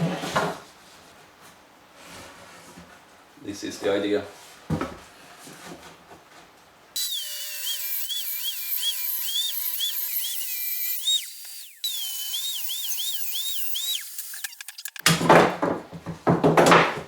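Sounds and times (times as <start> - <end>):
power tool whining cutting wood: 7.0 - 15.1.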